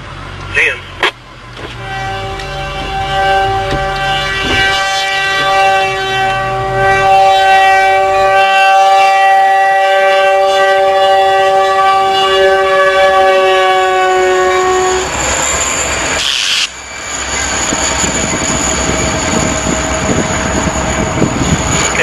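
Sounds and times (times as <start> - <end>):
low rumble: 0.0 - 8.4
locomotive air horn chord: 1.7 - 15.6.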